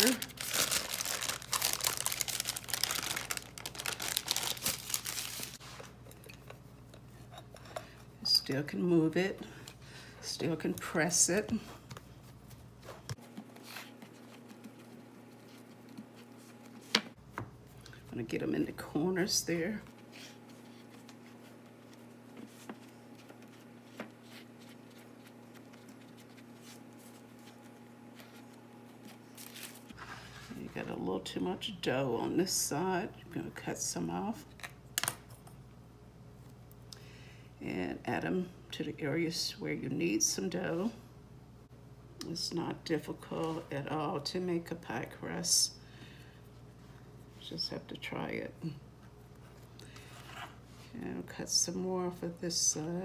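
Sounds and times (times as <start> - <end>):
parchment paper crinkling: 0.0 - 5.8, 19.9 - 30.5
low electrical hum: 0.0 - 53.0.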